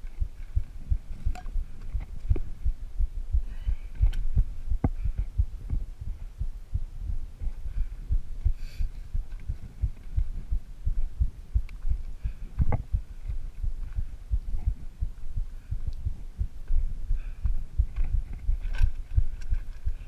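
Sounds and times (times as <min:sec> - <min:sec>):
low thumps on microphone: 0:00.0 - 0:20.0.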